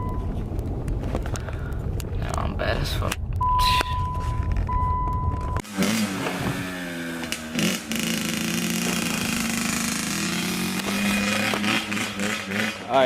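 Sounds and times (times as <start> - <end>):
high beep: 0.0 - 0.3, 3.4 - 5.6
dirt bike engine revving: 5.6 - 13.0.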